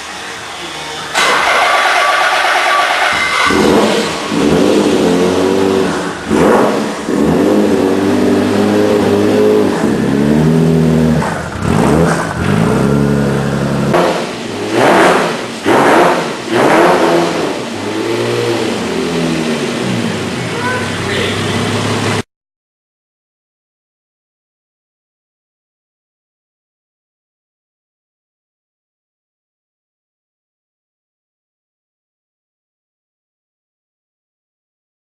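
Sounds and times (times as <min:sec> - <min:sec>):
race car engine revving: 0:00.0 - 0:22.2.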